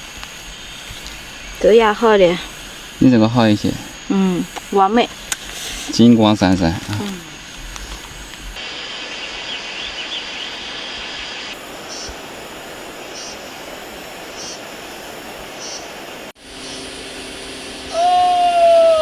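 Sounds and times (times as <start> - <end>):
rustling hiss: 0.0 - 19.0
short high call: 17.9 - 19.0.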